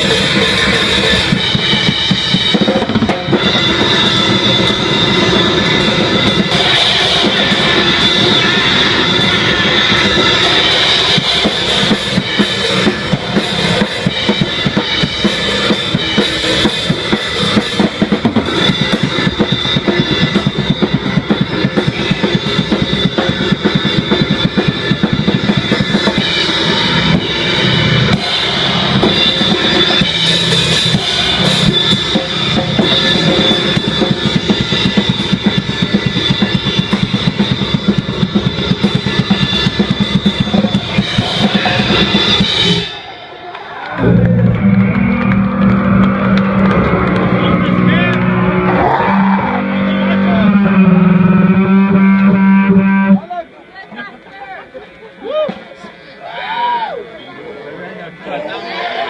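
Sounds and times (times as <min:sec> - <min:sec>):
drum kit with cymbals: 0:00.0 - 0:43.5
wall of distorted noise: 0:00.0 - 0:59.0.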